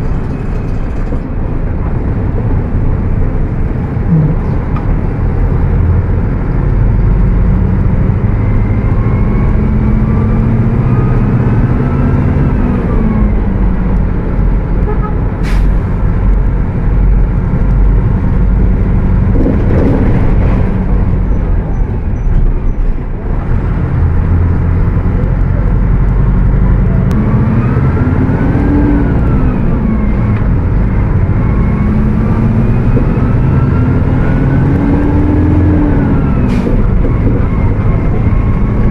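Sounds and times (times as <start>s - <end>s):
bus engine running at high revs: 0.0s - 38.9s.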